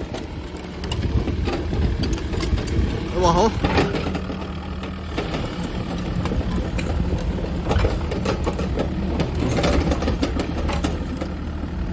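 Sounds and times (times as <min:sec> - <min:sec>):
excavator diesel engine running: 0:00.0 - 0:11.9
machine clanks and knocks: 0:03.6 - 0:11.5.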